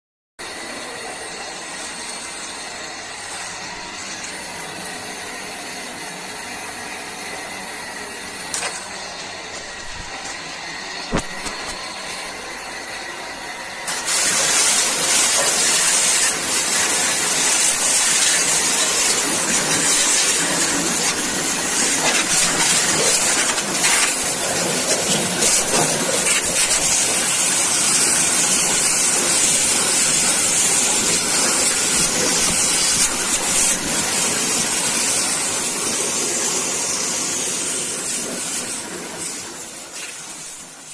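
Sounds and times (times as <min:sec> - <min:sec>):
high-pressure water jet spraying: 0:13.8 - 0:40.9.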